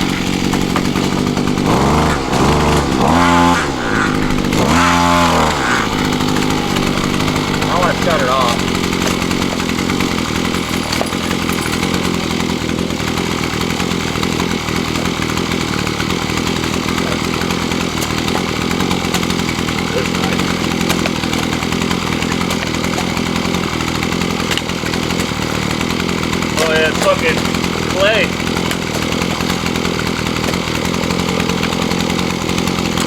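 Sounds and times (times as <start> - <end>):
post hole auger engine running: 0.0 - 33.0.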